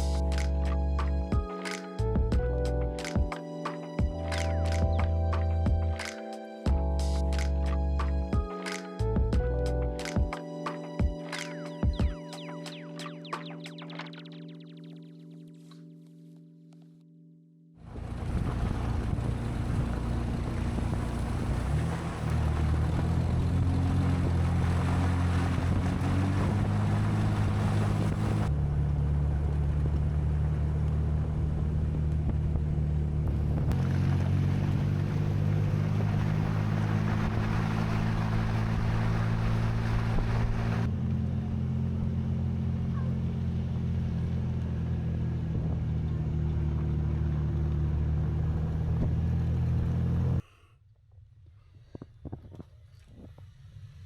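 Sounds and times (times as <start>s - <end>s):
car engine droning: 17.8s - 50.4s.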